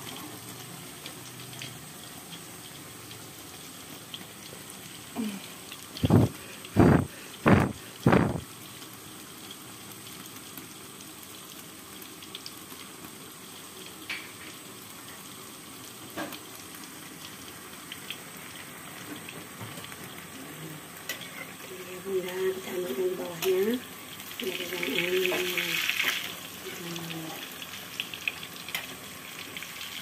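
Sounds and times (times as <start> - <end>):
food sizzling in oil: 0.0 - 30.0
loud thumps: 6.0 - 8.4.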